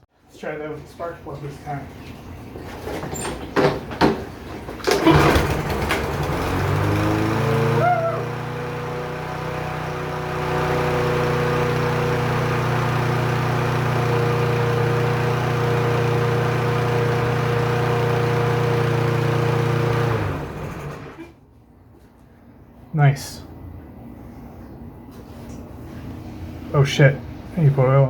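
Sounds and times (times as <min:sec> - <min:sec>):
lawn mower engine running: 0:04.8 - 0:21.3.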